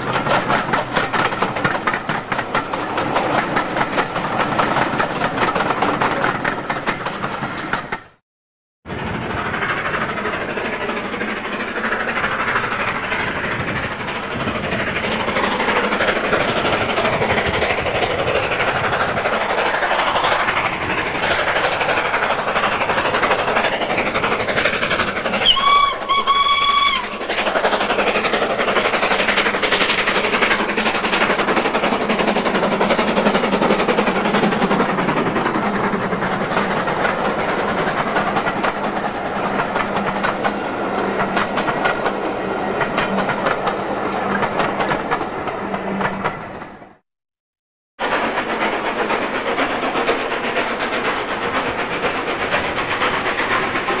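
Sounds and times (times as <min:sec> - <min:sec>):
train passing with rail clatter: 0:00.0 - 0:08.2, 0:08.9 - 0:47.0, 0:48.0 - 0:54.0
train whistle blasts: 0:25.4 - 0:27.1.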